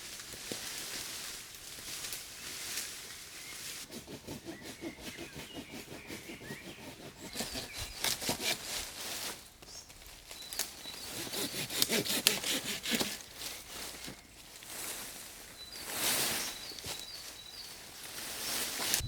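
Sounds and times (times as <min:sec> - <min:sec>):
hand saw cutting wood: 0:03.9 - 0:08.9, 0:11.0 - 0:13.3.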